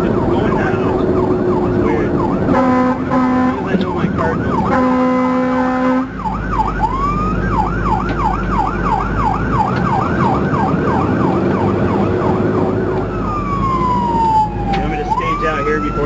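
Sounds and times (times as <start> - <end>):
siren yelping: 0.0 - 16.0
truck engine running: 0.0 - 16.0
fire truck horn blaring: 2.4 - 6.4.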